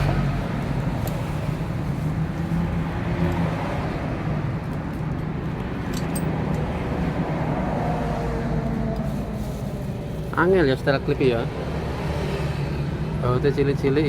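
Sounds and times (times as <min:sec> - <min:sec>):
motor vehicle engine: 0:00.0 - 0:13.2
traffic noise: 0:00.0 - 0:14.0
small metallic clicks: 0:05.8 - 0:06.7.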